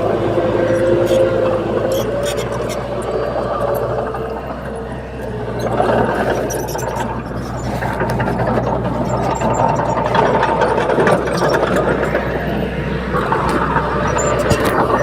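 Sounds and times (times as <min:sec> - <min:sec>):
diesel machinery engine drone: 0:00.0 - 0:15.0
metallic clicks and clanks: 0:05.6 - 0:15.0.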